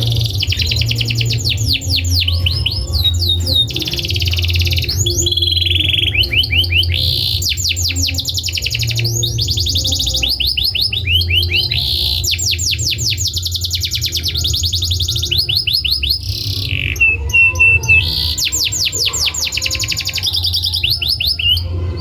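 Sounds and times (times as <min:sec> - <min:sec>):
low steady hum: 0:00.0 - 0:15.3
canary singing trills: 0:00.0 - 0:22.0.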